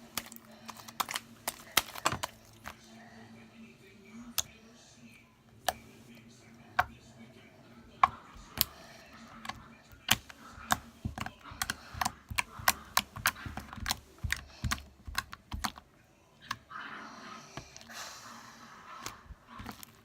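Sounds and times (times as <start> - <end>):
slime clicking and popping: 10.1 - 15.8.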